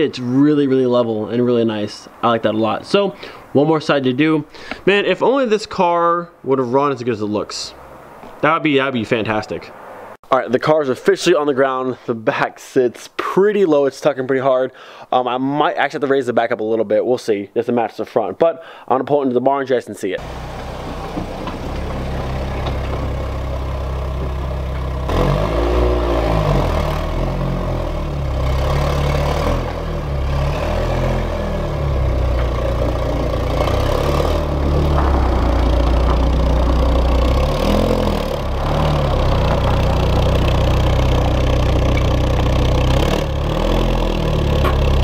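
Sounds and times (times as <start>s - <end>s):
car engine running: 20.2s - 45.0s.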